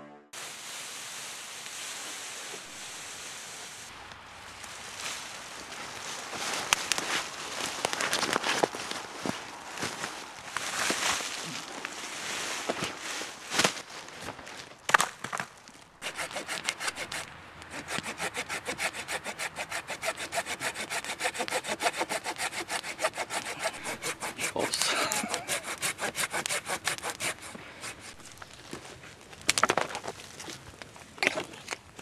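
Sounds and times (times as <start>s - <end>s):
hand saw cutting wood: 16.0s - 28.4s.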